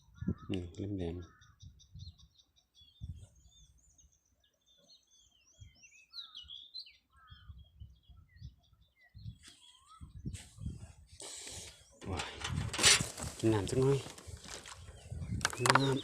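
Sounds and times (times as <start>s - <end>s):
small birds chirping: 0.0s - 16.0s
rustle: 12.2s - 16.0s.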